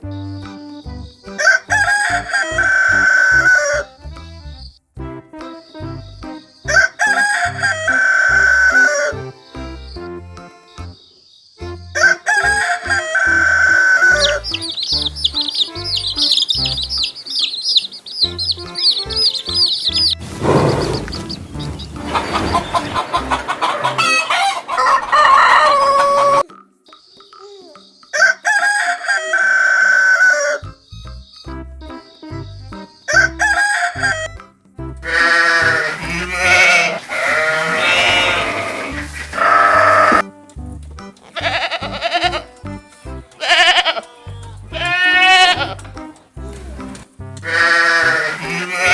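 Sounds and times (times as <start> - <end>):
background music with steady beat: 0.0 - 28.9, 30.4 - 48.9
rooster crowing: 1.4 - 3.8, 6.8 - 9.2, 12.0 - 14.4, 22.1 - 26.4, 28.2 - 30.6, 33.2 - 34.3, 35.1 - 40.2, 47.5 - 48.9
rapid high chirping: 13.3 - 28.2.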